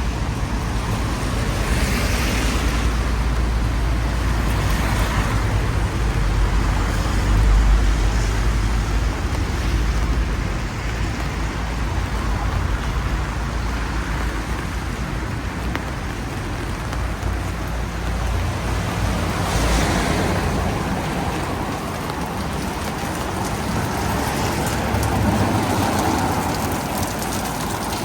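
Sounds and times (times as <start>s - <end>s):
rain hiss: 0.0s - 28.0s
tyres on wet road: 0.0s - 28.0s
vehicle passing: 18.3s - 28.0s.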